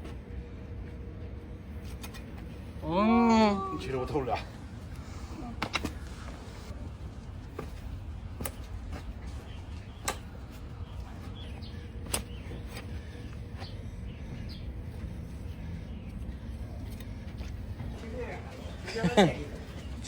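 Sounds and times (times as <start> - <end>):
steady low rumble: 0.0 - 20.0
faint bird chirps: 9.3 - 17.2.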